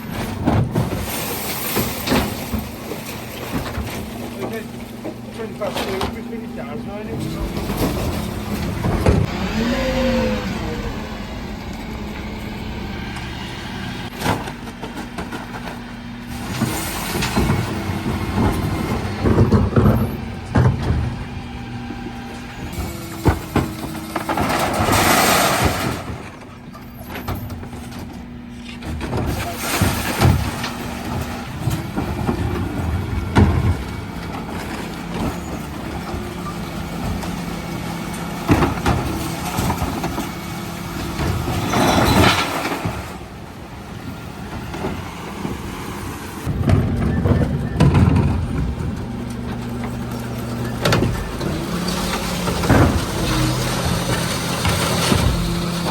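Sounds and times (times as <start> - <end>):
refuse truck running: 0.0 - 55.9
knocks and clatter: 14.1 - 21.5, 46.4 - 55.9.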